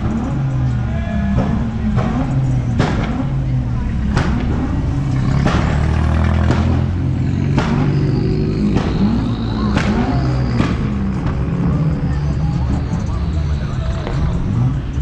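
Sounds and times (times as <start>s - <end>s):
car engines rumbling: 0.0s - 15.0s
sharp cracks: 4.1s - 11.4s.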